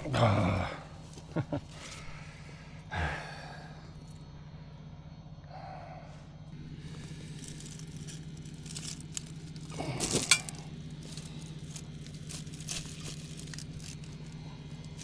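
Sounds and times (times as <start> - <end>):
low hum: 0.0 - 15.0
weeds crackling and rustling: 6.6 - 15.0.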